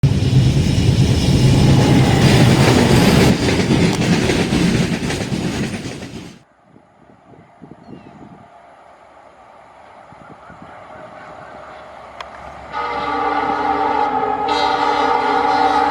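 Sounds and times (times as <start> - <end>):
wheels clattering over rails: 0.0 - 6.4
train rumbling past: 0.0 - 15.9.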